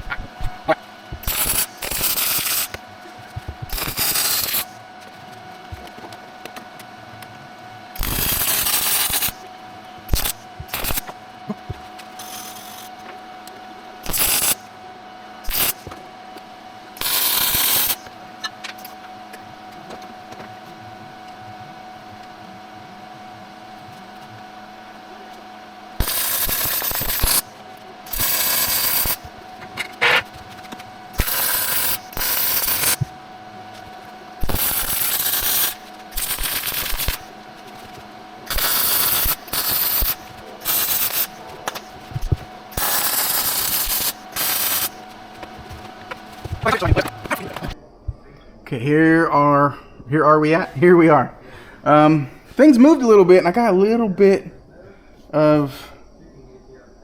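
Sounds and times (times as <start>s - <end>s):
crackling welding arc: 0.0s - 5.9s, 7.9s - 9.4s, 10.1s - 13.0s, 14.0s - 14.7s, 15.4s - 16.1s, 17.0s - 19.4s, 25.9s - 47.8s
faint steady hum: 0.0s - 57.0s.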